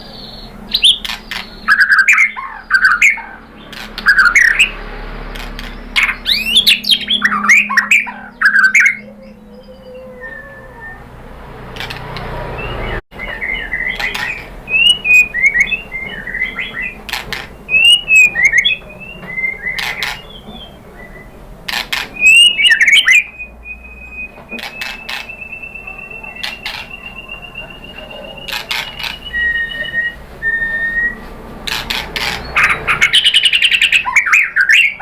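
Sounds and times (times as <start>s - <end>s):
bird singing whistled phrases: 0.0s - 4.8s, 5.8s - 11.1s, 12.6s - 17.0s, 17.6s - 21.4s, 22.2s - 31.3s, 32.4s - 35.0s
bird rapid trill: 0.0s - 35.0s
bird sharp clicking notes: 0.8s - 9.0s, 13.2s - 20.7s, 24.2s - 27.4s, 28.0s - 29.6s.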